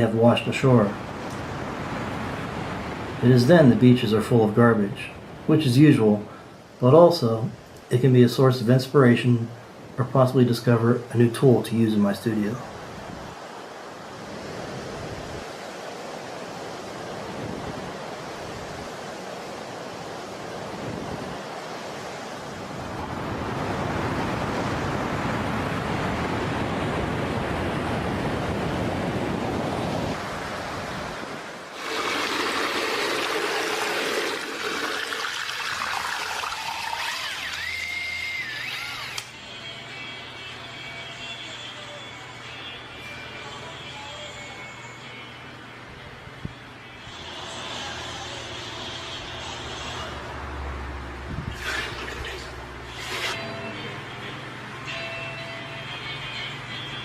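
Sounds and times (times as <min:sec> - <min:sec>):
ocean surf washing onto beach: 0:00.0 - 0:36.4
soft background music: 0:39.3 - 0:50.8, 0:53.4 - 0:57.0
brief wavering tone: 0:52.9 - 0:57.0.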